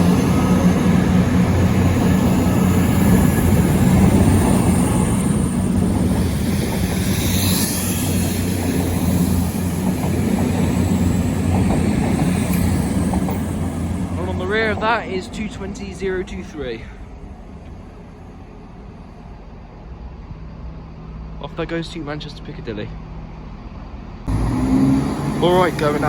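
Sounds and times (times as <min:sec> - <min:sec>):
high squeal: 0:00.0 - 0:14.8
diesel train engines droning: 0:00.0 - 0:26.0.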